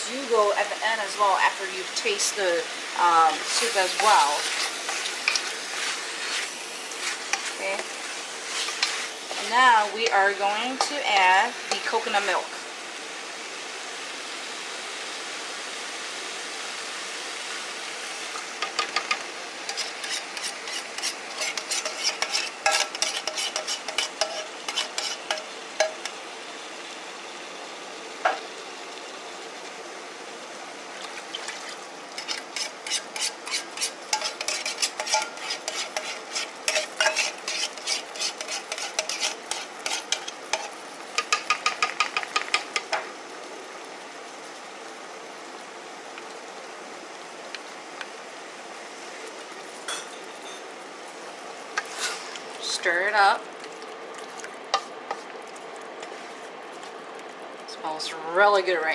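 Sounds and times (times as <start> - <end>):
sizzling in frying pot: 0.0 - 58.9
metal spoon scraping metal: 3.6 - 7.9, 8.5 - 9.5, 19.7 - 26.0, 32.2 - 40.7.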